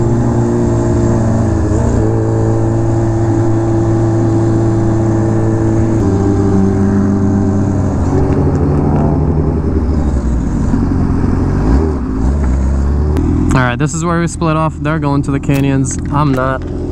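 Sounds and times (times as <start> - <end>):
motorcycle engine cruising: 0.0 - 16.9
road and wind noise: 0.0 - 16.9.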